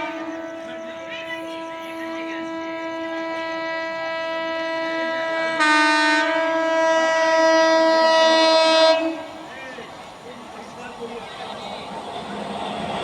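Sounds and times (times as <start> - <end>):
train horn blast: 0.0 - 9.5.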